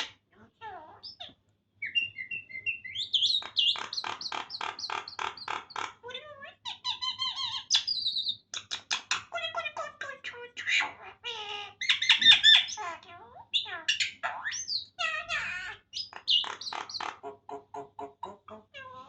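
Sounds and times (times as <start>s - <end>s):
myna chattering and whistling: 1.0s - 6.0s, 15.8s - 18.7s.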